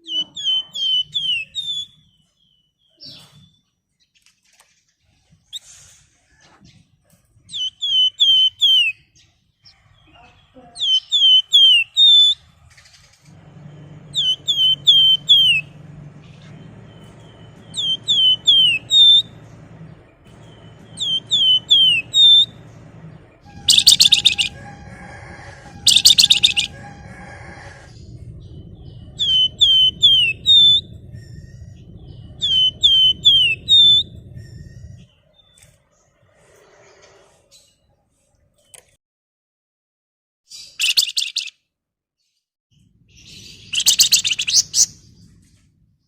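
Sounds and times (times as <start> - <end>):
songbird whistling: 0.0 - 3.3, 7.5 - 9.1, 10.8 - 12.4, 13.3 - 35.7, 40.7 - 41.5, 43.2 - 45.0
low steady hum: 12.4 - 35.7
rapid buzzing trills: 13.3 - 35.1.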